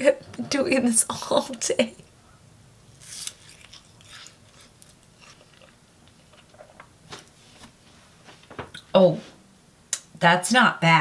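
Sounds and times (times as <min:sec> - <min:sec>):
person biting food: 0:03.0 - 0:06.7
faint chewing: 0:03.0 - 0:07.4.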